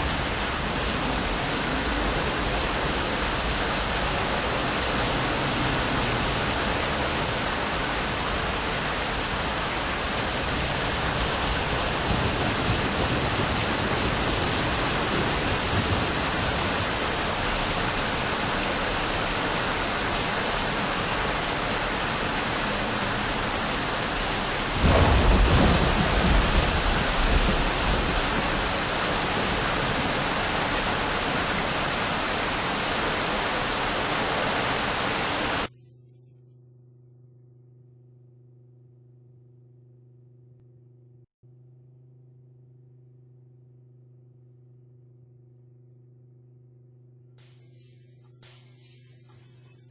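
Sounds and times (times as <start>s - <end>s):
thunder rumbling and cracking: 0.0s - 34.4s
steady rain: 0.0s - 35.7s.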